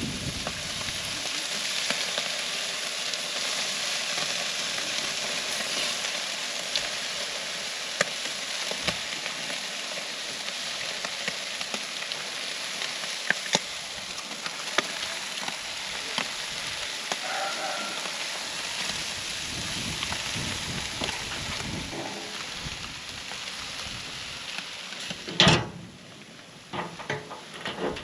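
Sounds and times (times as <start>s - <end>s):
fish sizzling on grill: 0.0s - 28.0s
fat popping and crackling: 10.9s - 26.0s.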